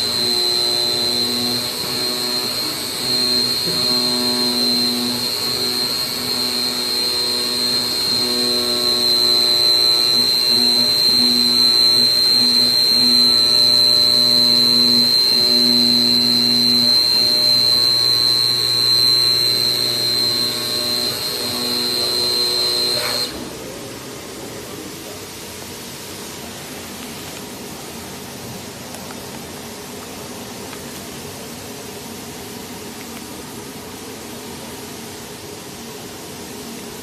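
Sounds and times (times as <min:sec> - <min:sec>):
motor hum: 0:00.0 - 0:23.7
cutting head high whine: 0:00.0 - 0:24.0.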